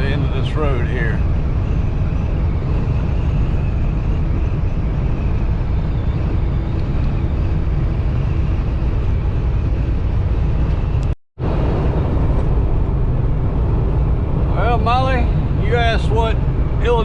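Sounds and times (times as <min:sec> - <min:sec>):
truck engine and road noise: 0:00.0 - 0:17.0.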